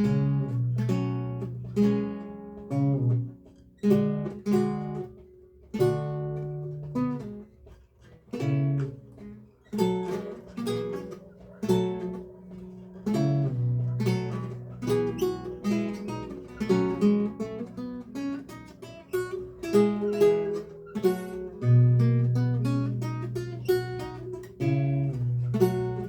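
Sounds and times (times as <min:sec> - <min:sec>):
lute playing: 0:08.4 - 0:26.0.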